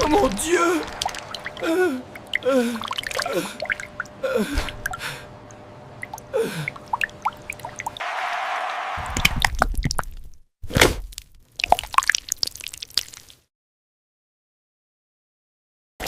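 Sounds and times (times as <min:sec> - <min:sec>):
cartoon chocolate dripping and splatting: 0:09.2 - 0:13.5.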